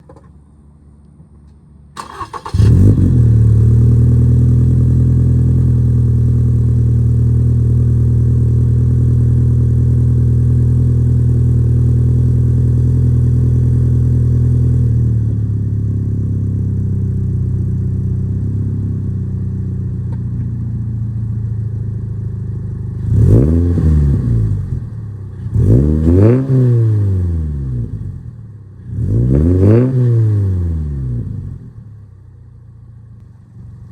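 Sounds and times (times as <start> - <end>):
car engine cranking and idling: 0.0 - 29.1
engine revs rising and falling: 23.0 - 24.8, 25.5 - 28.0, 28.9 - 31.5.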